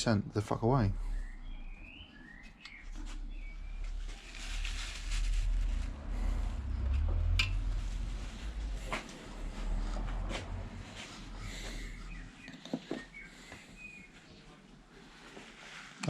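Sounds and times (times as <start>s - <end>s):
low hum: 0.8s - 12.5s.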